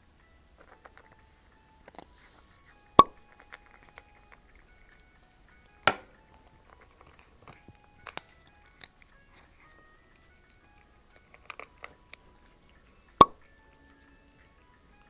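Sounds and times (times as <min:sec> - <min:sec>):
cat chewing: 0:00.0 - 0:15.0
soft background music: 0:00.0 - 0:15.0.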